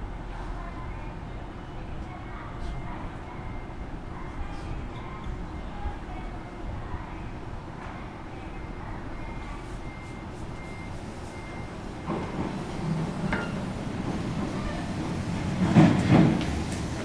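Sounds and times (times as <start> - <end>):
electric train interior hum: 0.0 - 17.0
rail rumble of passing train: 0.0 - 17.0
faint high beeps: 2.6 - 6.6, 8.1 - 12.3.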